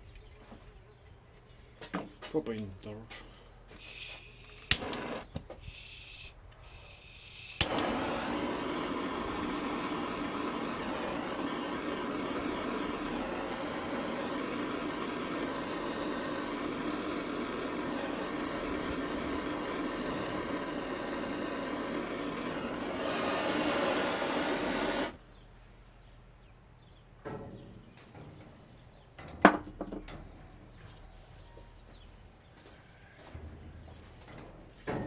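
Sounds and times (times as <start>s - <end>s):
torch flame hissing: 3.8s - 25.2s.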